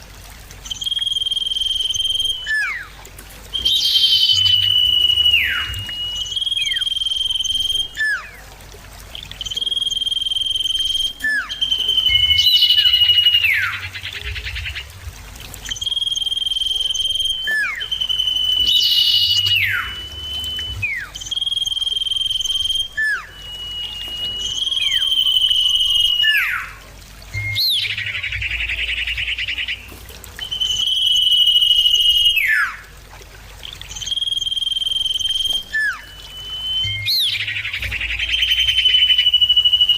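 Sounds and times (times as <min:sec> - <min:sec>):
bird whistling song: 0:00.6 - 0:33.0, 0:33.6 - 0:39.9
harsh buzzy bird chatter: 0:03.6 - 0:06.9, 0:11.5 - 0:15.0.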